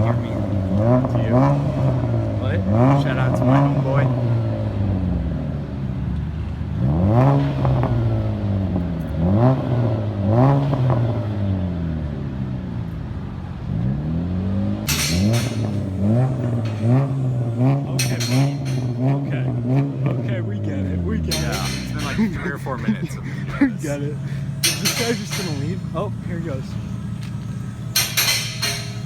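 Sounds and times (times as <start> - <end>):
car engine revving loud exhaust: 0.0 - 29.0.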